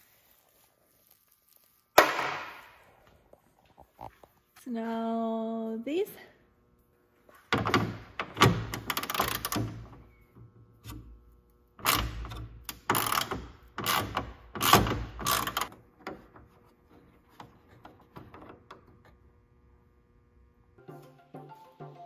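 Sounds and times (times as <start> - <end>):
power tool loosening bolts: 11.8 - 15.8.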